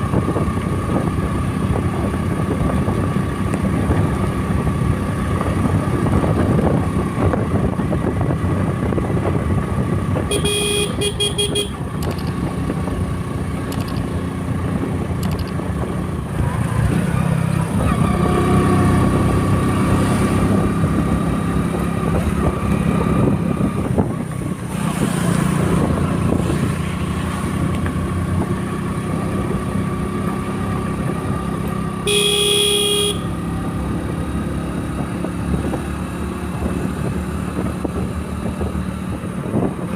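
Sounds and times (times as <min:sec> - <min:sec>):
motorcycle engine running: 0:00.0 - 0:39.9
vehicle horn: 0:10.3 - 0:11.8, 0:32.0 - 0:33.4.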